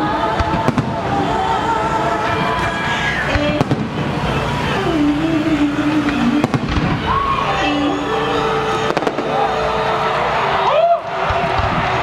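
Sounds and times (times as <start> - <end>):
fireworks crackling: 0.0 - 12.0
music playing: 0.0 - 12.0
fireworks bangs: 0.3 - 10.2, 11.1 - 12.0.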